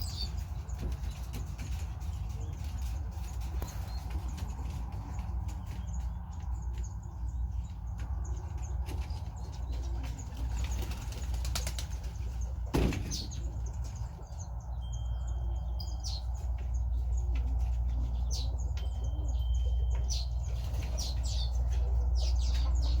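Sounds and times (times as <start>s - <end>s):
birds chirping: 0.0s - 23.0s
wings flapping: 8.8s - 14.0s.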